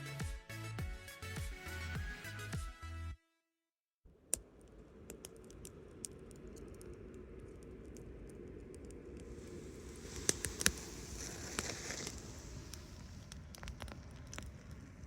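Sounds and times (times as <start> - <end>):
background music: 0.0 - 3.3
campfire crackling and popping: 4.2 - 15.0.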